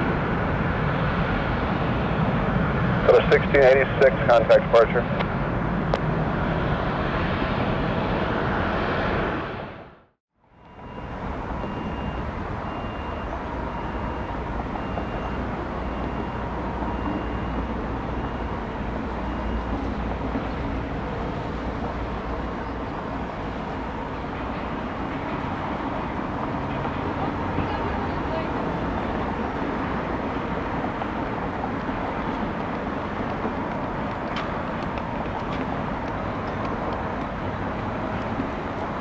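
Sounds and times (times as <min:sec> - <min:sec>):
jet engine rushing: 0:00.0 - 0:10.0
faint high beeping: 0:10.6 - 0:21.0.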